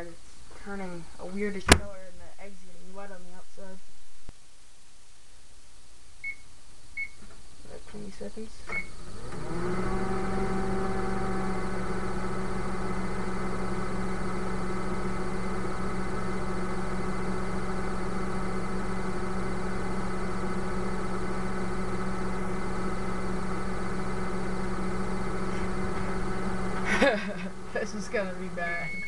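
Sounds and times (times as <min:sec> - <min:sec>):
microwave oven humming: 0:08.0 - 0:29.0.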